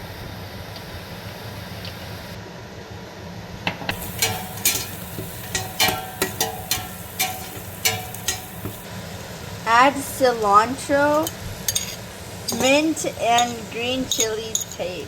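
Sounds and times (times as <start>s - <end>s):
oil sizzling: 3.9s - 15.0s
spoon clinking against a pan: 4.0s - 8.8s, 11.2s - 15.0s.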